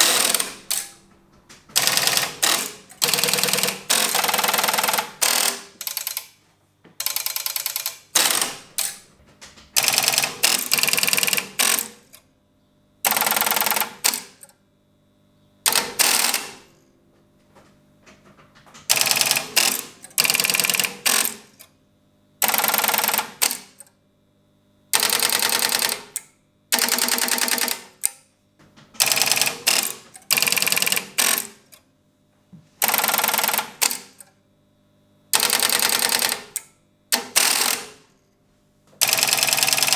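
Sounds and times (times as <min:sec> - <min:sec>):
telephone exchange switches clicking: 0:00.0 - 0:01.0, 0:01.8 - 0:06.3, 0:07.0 - 0:09.0, 0:09.8 - 0:12.2, 0:13.1 - 0:14.6, 0:15.7 - 0:16.6, 0:18.9 - 0:21.7, 0:22.4 - 0:23.9, 0:25.0 - 0:28.2, 0:29.0 - 0:31.8, 0:32.8 - 0:34.3, 0:35.4 - 0:38.0.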